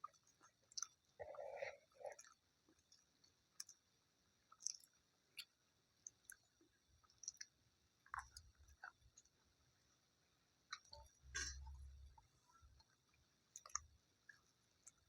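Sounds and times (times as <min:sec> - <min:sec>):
person chewing food: 0:00.0 - 0:09.4, 0:10.7 - 0:15.0.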